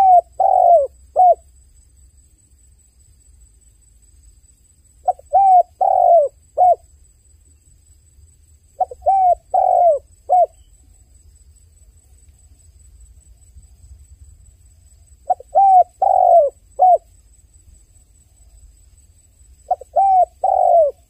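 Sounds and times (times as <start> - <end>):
dove cooing: 0.0 - 1.4, 5.0 - 6.8, 8.8 - 10.6, 15.2 - 17.1, 19.6 - 21.0.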